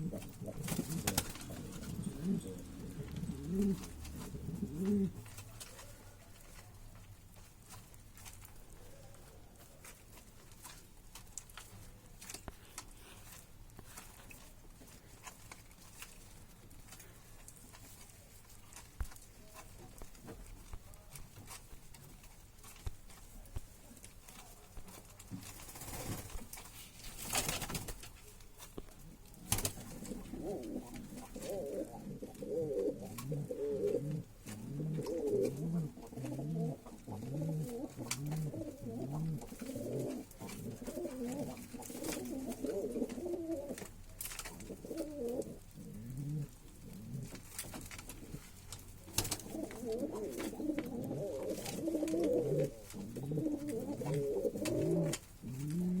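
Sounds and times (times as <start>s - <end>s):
pigeon cooing: 0.0s - 6.0s, 29.1s - 48.6s, 49.2s - 56.0s.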